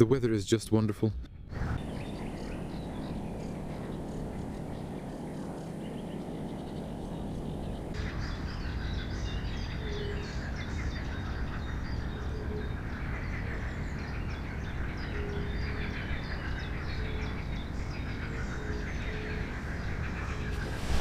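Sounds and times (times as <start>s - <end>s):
songbirds chirping and singing: 1.3s - 21.0s
low rumble: 20.2s - 21.0s.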